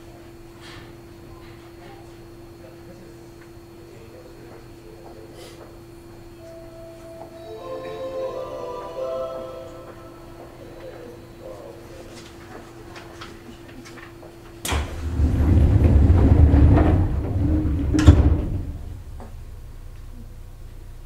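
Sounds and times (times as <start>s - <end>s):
train interior hum: 6.3s - 11.9s, 14.8s - 19.9s.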